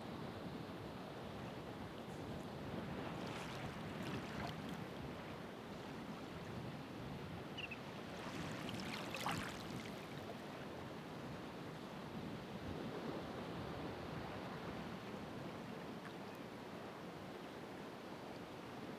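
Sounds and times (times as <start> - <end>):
ocean waves breaking on shore: 1.1 - 16.0.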